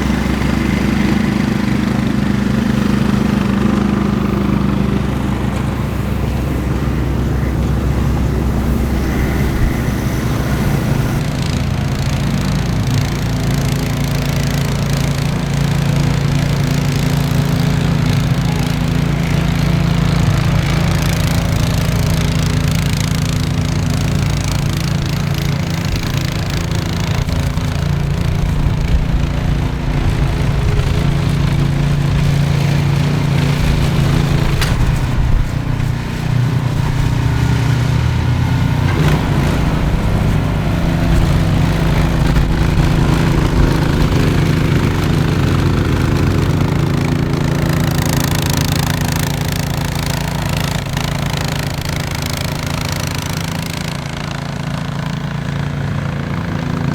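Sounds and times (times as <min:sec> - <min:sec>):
engine running steadily: 0:00.0 - 0:56.9.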